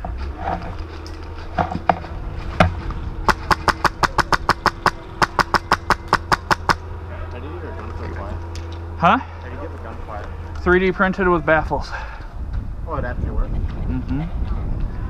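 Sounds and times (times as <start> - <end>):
airsoft gun firing rapid shots: 3.3 - 6.8.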